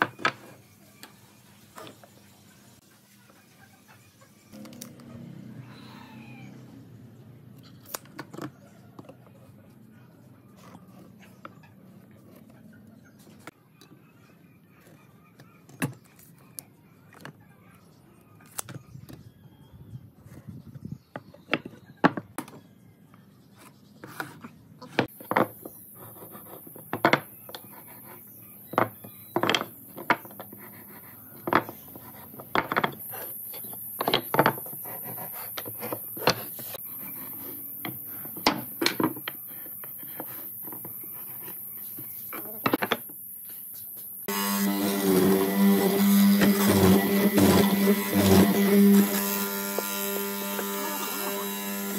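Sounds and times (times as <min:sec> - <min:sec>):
scraping of marking out: 0:23.6 - 0:38.4
tools knocking on wooden workbench: 0:26.9 - 0:27.3.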